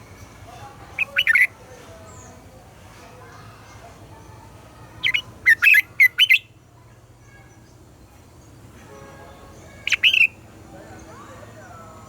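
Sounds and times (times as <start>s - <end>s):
bulbul singing whistled notes: 9.8s - 10.4s.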